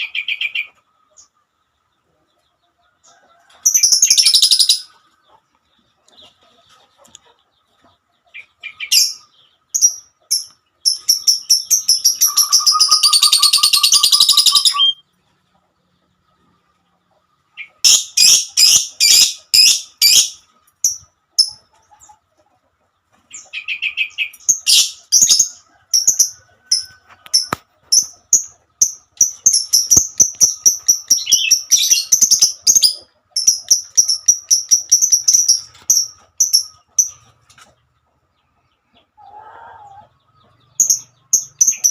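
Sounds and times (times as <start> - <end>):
lovebird chattering: 9.8 - 15.0, 17.8 - 21.6, 23.4 - 37.2, 40.8 - 41.9.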